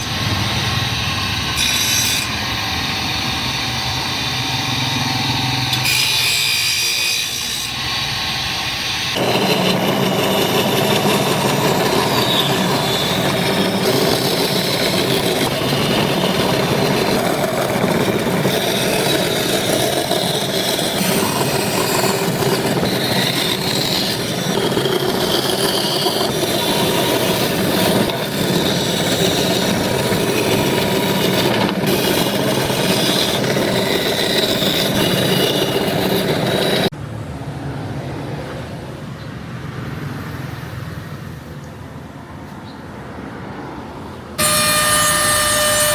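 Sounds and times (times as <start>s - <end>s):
tools scraping and grinding wood: 5.7s - 8.0s, 9.1s - 36.9s, 44.4s - 45.9s.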